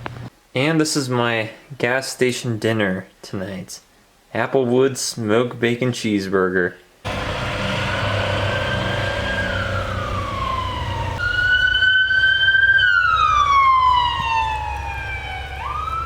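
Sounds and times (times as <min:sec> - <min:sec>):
emergency vehicle siren wailing: 0:07.1 - 0:16.0.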